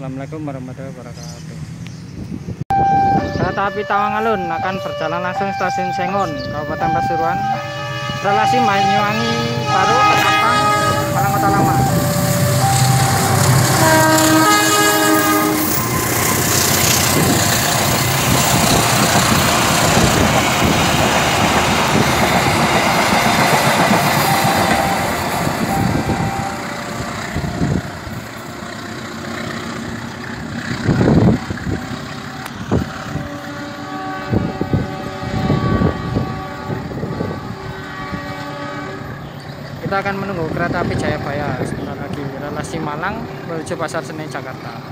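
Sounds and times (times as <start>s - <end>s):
locomotive horn: 2.7s - 20.4s, 21.8s - 29.7s, 32.3s - 39.4s
train rumble and wheel clatter: 5.4s - 44.9s.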